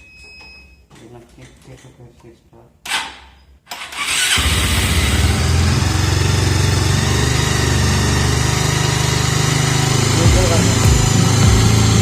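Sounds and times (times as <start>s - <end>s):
motorcycle engine idling: 4.4s - 12.0s.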